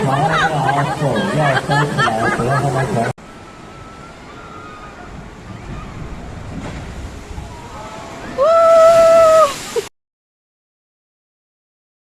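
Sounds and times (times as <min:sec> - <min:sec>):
rushing water: 0:00.0 - 0:09.9
wind noise: 0:03.3 - 0:09.9.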